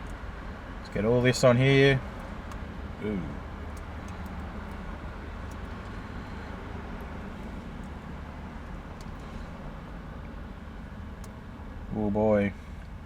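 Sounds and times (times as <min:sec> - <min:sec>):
low hum inside car cabin: 0:00.0 - 0:13.0
faint light ticks: 0:03.7 - 0:04.8, 0:08.6 - 0:09.4.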